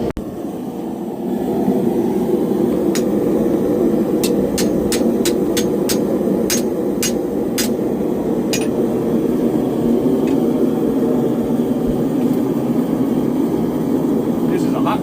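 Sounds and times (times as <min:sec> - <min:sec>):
forge roaring steadily: 0:00.0 - 0:15.0
metal striking metal: 0:04.2 - 0:07.8, 0:08.5 - 0:08.8.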